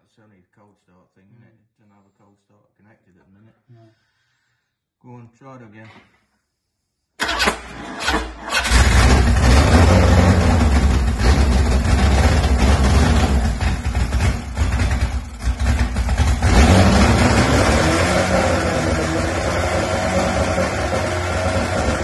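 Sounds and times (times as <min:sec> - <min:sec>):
car engine starting and running unevenly: 0:07.2 - 0:22.0.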